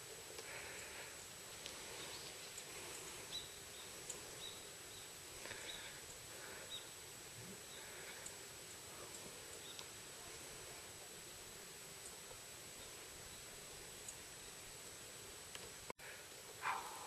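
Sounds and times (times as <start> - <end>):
small bird chirping: 1.8 - 7.0, 9.0 - 10.0.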